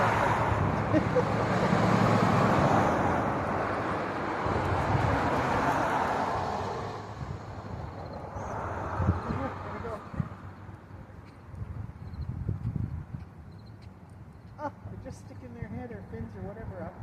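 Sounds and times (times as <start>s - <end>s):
vehicle passing by: 0.0s - 10.8s.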